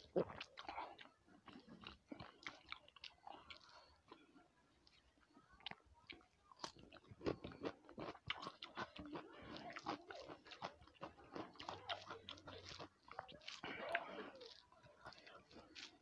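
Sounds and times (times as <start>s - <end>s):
person chewing with mouth smacks: 0.0s - 16.0s
fingers mixing rice on plate: 6.9s - 16.0s.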